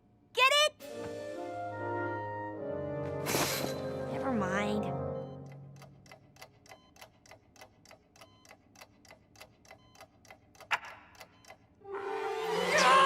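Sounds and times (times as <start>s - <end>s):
cartoon clock ticking quickly: 5.5s - 11.8s.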